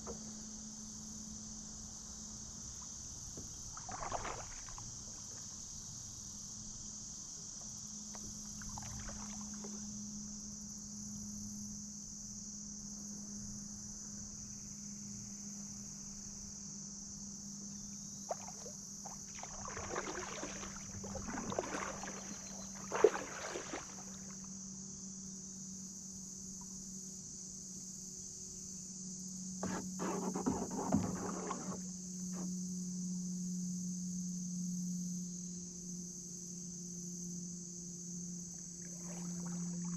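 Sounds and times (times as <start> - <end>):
insects droning: 0.0 - 39.9
paddle splashing in water: 3.4 - 5.4, 8.6 - 9.8, 18.3 - 24.4, 29.6 - 31.8, 38.9 - 39.9.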